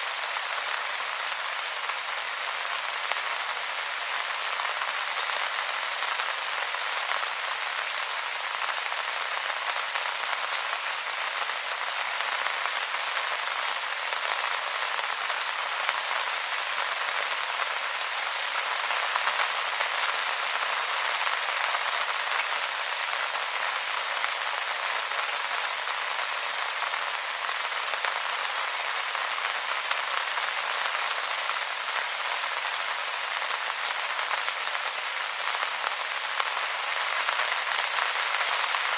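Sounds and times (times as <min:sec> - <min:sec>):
rain falling on wet leaves: 0:00.0 - 0:38.9.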